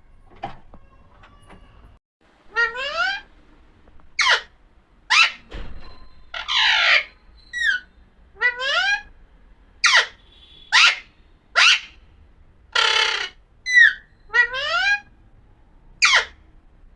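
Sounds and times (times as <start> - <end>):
parrot shrieking and squawking: 2.5 - 3.3, 4.2 - 9.1, 9.8 - 12.0, 12.7 - 15.1, 16.0 - 16.4.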